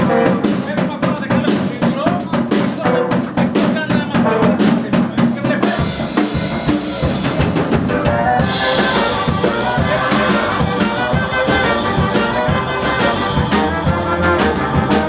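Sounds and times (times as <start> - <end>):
brass horns: 0.0 - 0.6, 6.7 - 15.0
drum kit beat: 0.0 - 15.0
swing band playing: 0.0 - 15.0.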